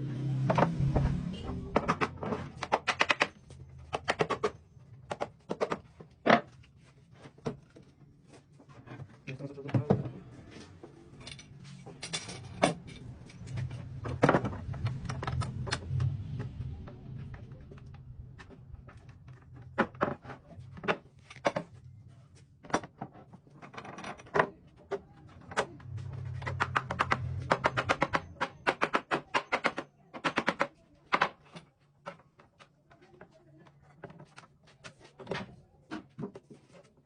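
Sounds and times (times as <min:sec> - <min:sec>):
low hum: 0:00.0 - 0:02.5, 0:10.7 - 0:19.7, 0:25.0 - 0:28.6
wooden parts knocking and clicking: 0:01.7 - 0:06.6, 0:18.4 - 0:21.8, 0:22.6 - 0:33.3.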